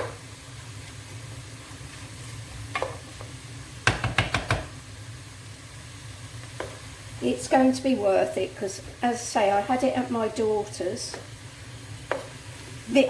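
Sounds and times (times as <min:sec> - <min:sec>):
chicken sizzling in a frying pan: 0:00.0 - 0:13.0
utensil knocking against pan: 0:03.8 - 0:04.7.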